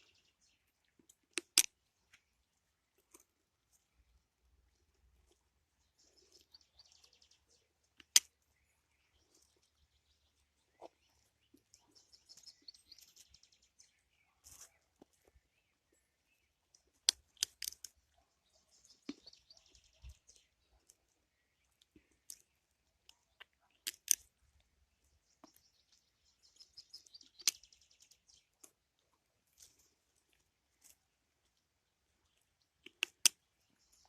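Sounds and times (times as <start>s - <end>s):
sharp clicks: 1.1s - 1.8s, 8.0s - 8.4s, 17.0s - 18.0s, 23.4s - 24.3s, 32.8s - 33.4s
songbirds trilling: 5.3s - 28.8s.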